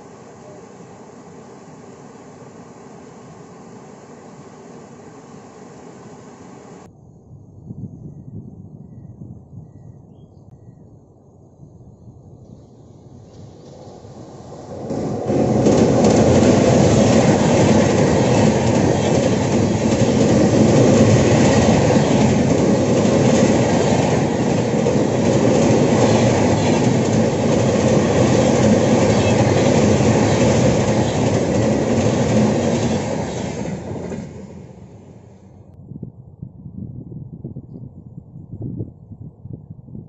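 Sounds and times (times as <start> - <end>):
train passing at speed: 0.0 - 6.9, 12.3 - 35.8
wheels clattering over track: 13.8 - 35.4.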